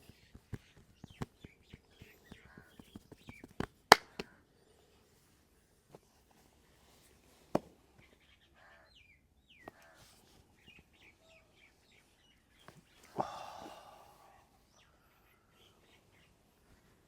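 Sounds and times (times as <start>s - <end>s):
faint bird chirps: 7.9s - 17.0s.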